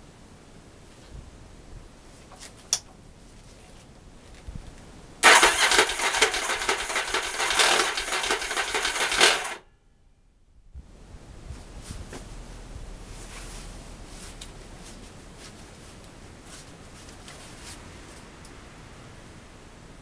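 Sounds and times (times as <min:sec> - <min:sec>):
motorcycle engine cranking: 0:05.2 - 0:09.6.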